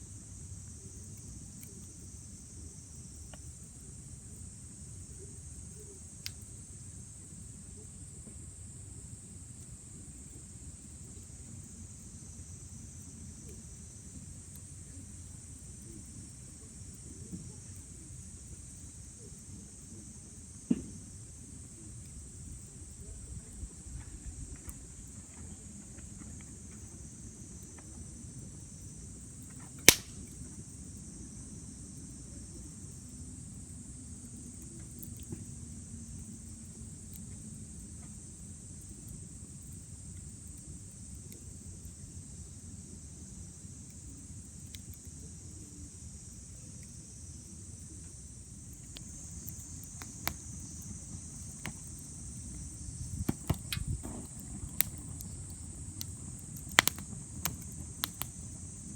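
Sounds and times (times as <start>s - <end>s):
night insects chorus: 0.0s - 58.9s
campfire crackling and popping: 29.4s - 30.4s, 48.6s - 58.9s.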